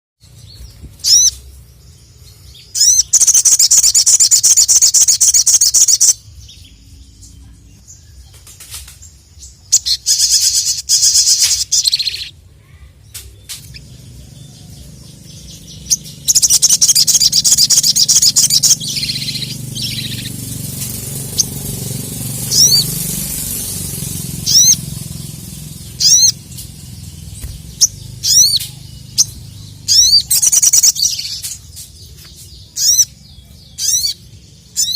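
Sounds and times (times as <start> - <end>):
bird singing high trills: 0.2 - 8.4, 9.1 - 34.9
bird sharp sweeping notes: 13.2 - 34.9.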